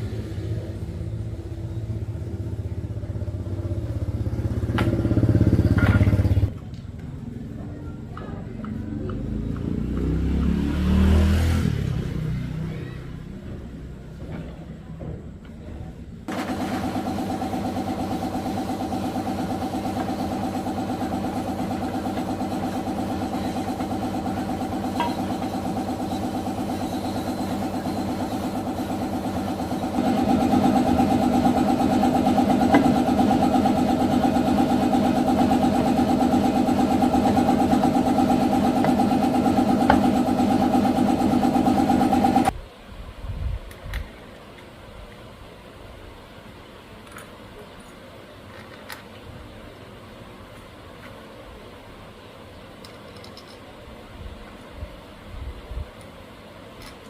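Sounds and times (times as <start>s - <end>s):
motorcycle engine running: 0.1s - 6.6s, 16.3s - 42.5s.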